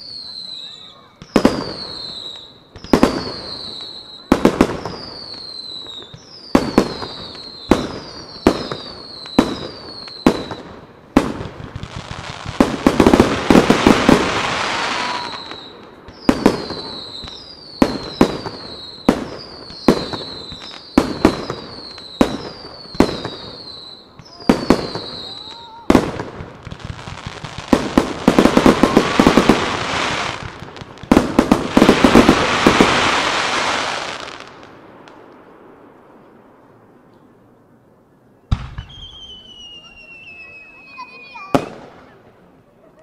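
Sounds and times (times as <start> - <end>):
firework bangs: 0.0 - 36.0, 38.5 - 42.6
dense firework crackling: 0.0 - 36.9
high falling whistle: 14.8 - 22.2, 38.7 - 41.6.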